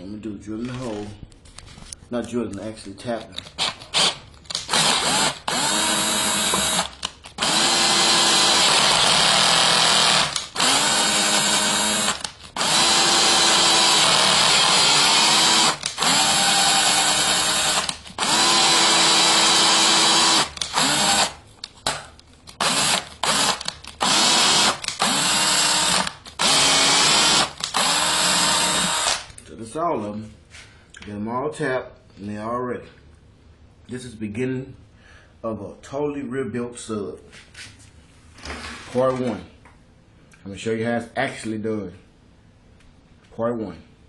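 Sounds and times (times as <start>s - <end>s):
electric drill motor spinning up: 3.6s - 21.4s, 22.6s - 29.3s.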